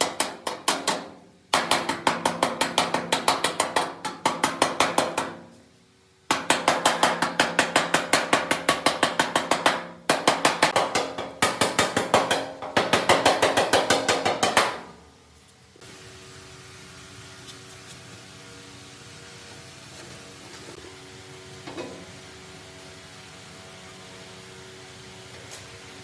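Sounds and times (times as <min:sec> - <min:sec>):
rapid hammering on metal: 0:00.0 - 0:05.6, 0:06.3 - 0:15.0.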